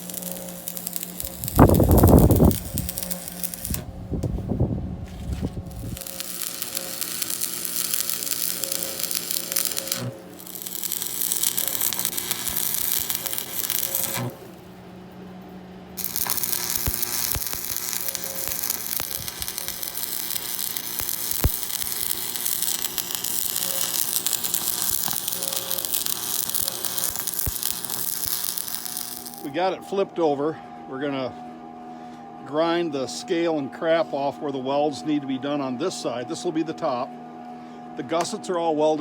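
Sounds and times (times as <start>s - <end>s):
welding arc crackling and sizzling: 0.0s - 14.7s, 16.0s - 29.6s.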